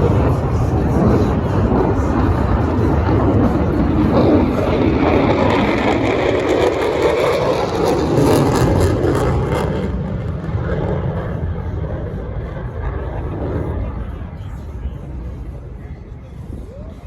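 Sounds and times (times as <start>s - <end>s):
fighter jet roar: 0.0s - 17.0s.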